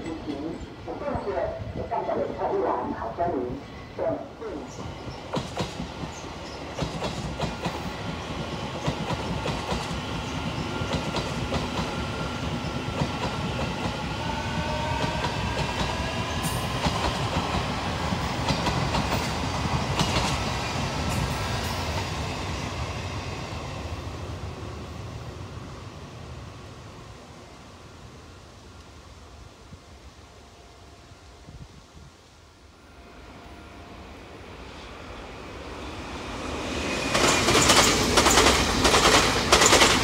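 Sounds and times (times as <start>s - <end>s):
train wheels clacking: 5.0s - 14.0s, 15.0s - 22.6s, 36.8s - 40.0s.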